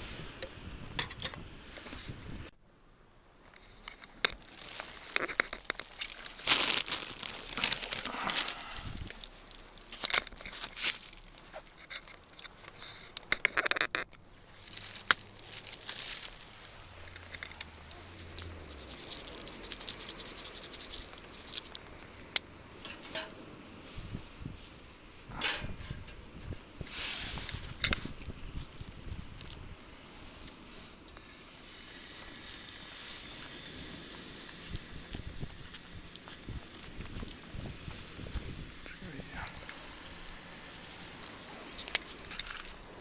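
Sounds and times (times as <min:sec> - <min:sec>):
objects rustling and knocking: 0:03.5 - 0:20.2, 0:22.8 - 0:23.4.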